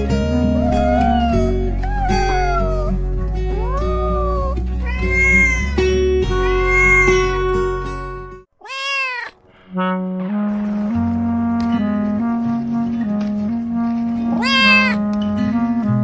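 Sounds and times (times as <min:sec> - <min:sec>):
light background music: 0:00.0 - 0:08.5, 0:09.7 - 0:16.0
cartoon cat meowing: 0:00.6 - 0:07.4, 0:08.6 - 0:09.4, 0:14.3 - 0:15.0.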